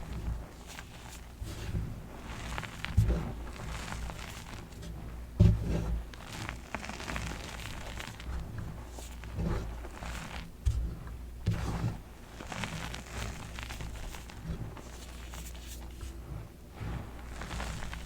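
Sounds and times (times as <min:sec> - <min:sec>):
chalk crunching and crumbling: 0:00.0 - 0:18.0
dull thumps: 0:01.3 - 0:06.6, 0:07.9 - 0:12.2.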